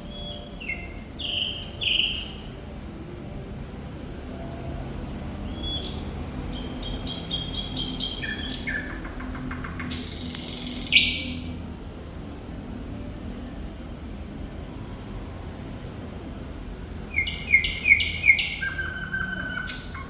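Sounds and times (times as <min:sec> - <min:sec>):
nightingale singing: 0:00.0 - 0:02.6, 0:04.4 - 0:11.6, 0:16.0 - 0:20.0.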